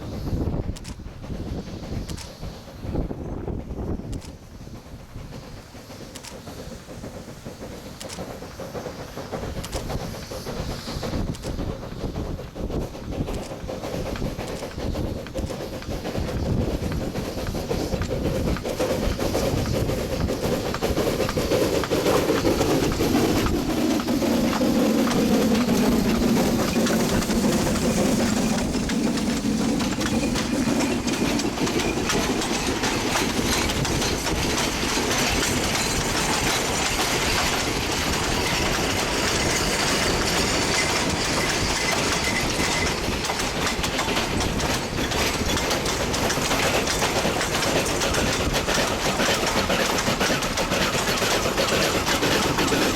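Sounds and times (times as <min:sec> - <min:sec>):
steam train passing: 0:00.0 - 0:52.9
wagons clattering over rail joints: 0:13.3 - 0:52.9.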